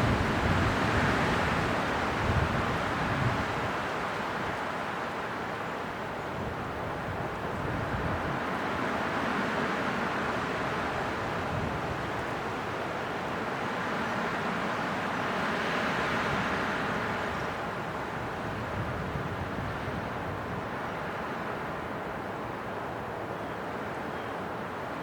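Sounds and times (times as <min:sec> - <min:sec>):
wind blowing: 0:00.0 - 0:03.7.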